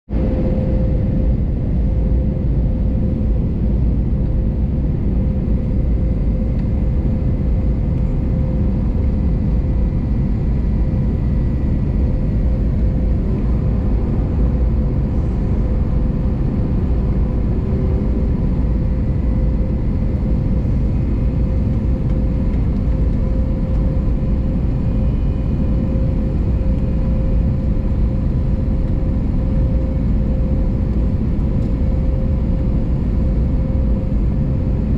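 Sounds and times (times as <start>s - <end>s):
airplane cabin engine rumble: 0.1s - 34.9s
constant hum: 0.1s - 34.9s.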